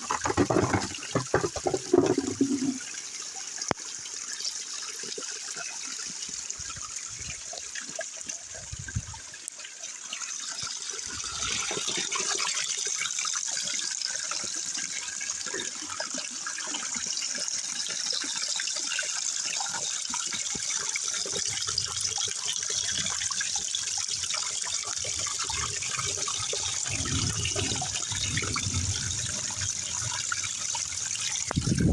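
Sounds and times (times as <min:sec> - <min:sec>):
water running and trickling: 0:00.0 - 0:31.9
steady rain: 0:26.0 - 0:31.9.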